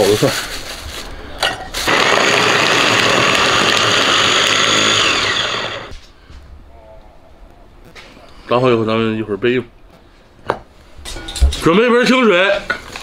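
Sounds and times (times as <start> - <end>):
motor winding down whine: 1.9 - 5.9
electric food chopper running: 1.9 - 6.0.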